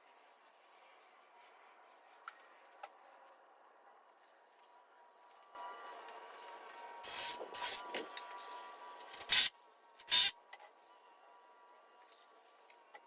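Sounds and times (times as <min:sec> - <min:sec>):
power tool driving fasteners: 0:09.2 - 0:10.3.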